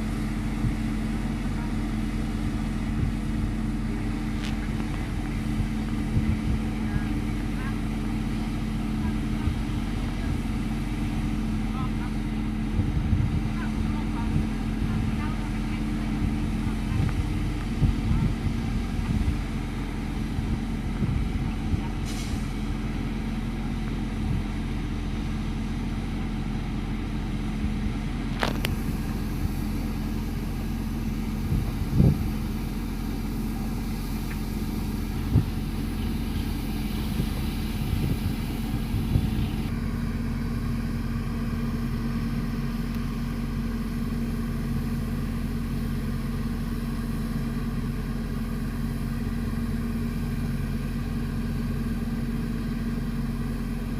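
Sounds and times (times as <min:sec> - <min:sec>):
fire engine engine running: 0:00.0 - 0:53.9.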